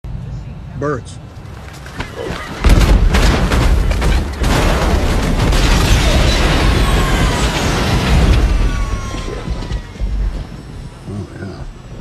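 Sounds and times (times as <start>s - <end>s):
bangs and thuds: 2.0s - 11.1s.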